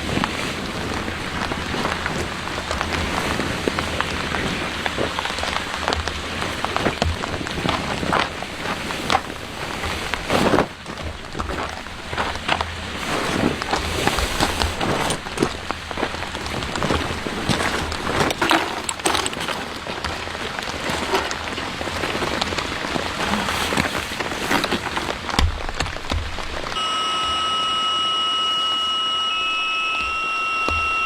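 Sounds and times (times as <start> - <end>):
rain pattering on a surface: 0.0 - 26.8
steady hum with high tones: 26.8 - 31.0.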